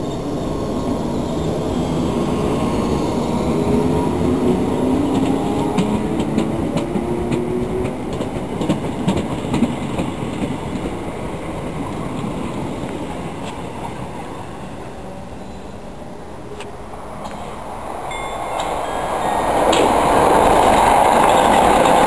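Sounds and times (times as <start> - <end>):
train rumble: 0.0 - 22.0
train wheels clicking over joints: 4.8 - 14.0, 18.5 - 22.0.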